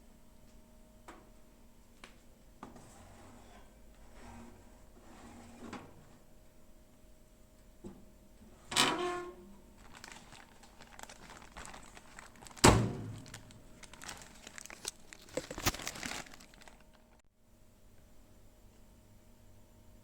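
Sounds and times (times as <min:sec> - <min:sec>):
crinkling rustling: 0:09.7 - 0:17.2.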